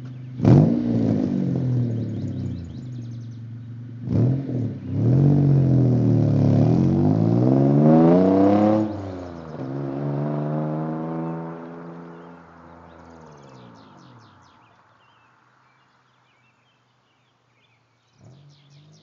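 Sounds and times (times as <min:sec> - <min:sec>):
car exhaust revving: 0:00.0 - 0:14.6.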